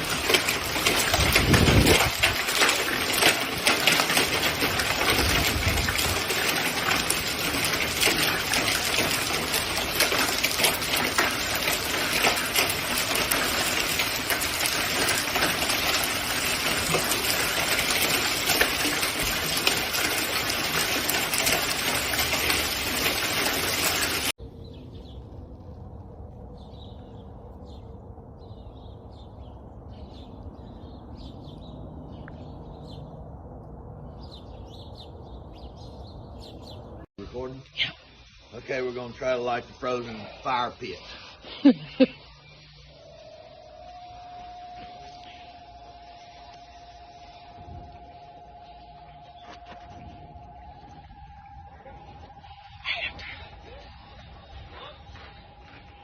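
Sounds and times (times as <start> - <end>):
hail pelting: 0.0 - 24.4
small birds chirping: 23.9 - 25.6, 26.4 - 41.4.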